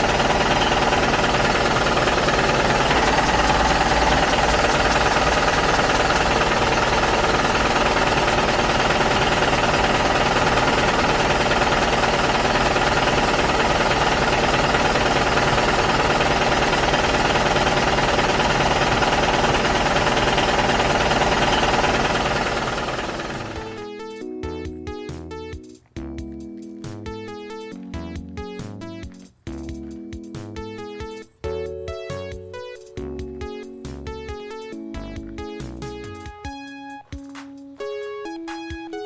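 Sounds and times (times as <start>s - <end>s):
machine rattling: 0.0s - 23.8s.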